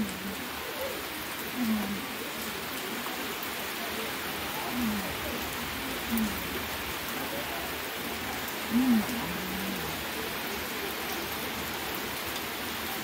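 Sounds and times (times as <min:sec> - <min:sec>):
heavy rain: 0:00.0 - 0:13.0
person humming low: 0:01.6 - 0:02.1, 0:04.6 - 0:05.2, 0:06.1 - 0:06.5, 0:08.7 - 0:10.1.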